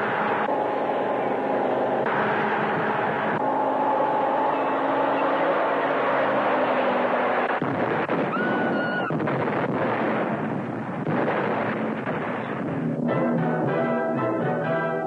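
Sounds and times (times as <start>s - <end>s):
steady engine hum: 0.0s - 15.0s
brief high wail: 8.3s - 9.2s.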